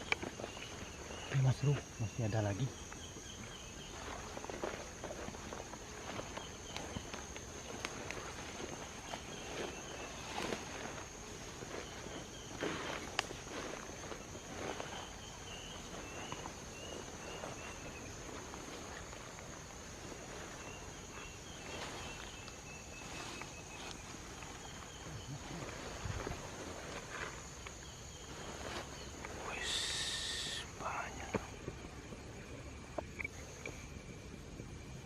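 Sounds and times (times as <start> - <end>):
steps rustling through undergrowth: 0.0 - 31.1
faint chirps: 0.0 - 35.0
insects droning: 0.0 - 35.0.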